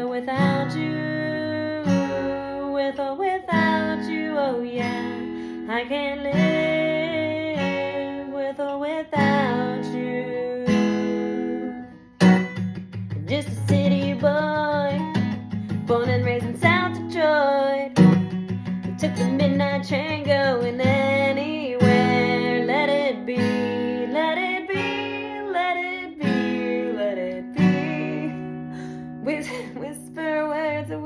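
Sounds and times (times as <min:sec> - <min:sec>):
strummed acoustic guitar: 0:00.0 - 0:31.0
person singing: 0:19.0 - 0:31.0.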